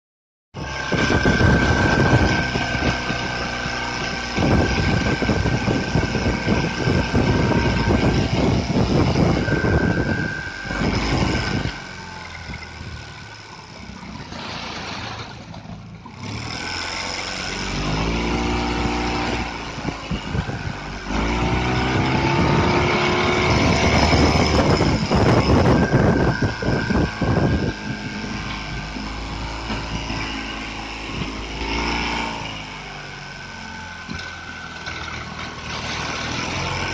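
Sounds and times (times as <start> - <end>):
boat engine running: 0.6 - 36.9.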